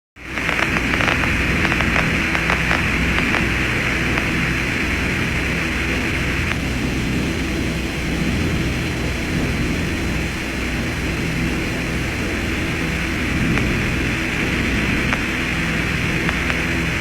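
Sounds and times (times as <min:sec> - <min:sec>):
crackling clicks: 0:00.2 - 0:06.7, 0:12.8 - 0:17.0
low hum: 0:00.2 - 0:17.0
radio static hiss: 0:00.2 - 0:17.0.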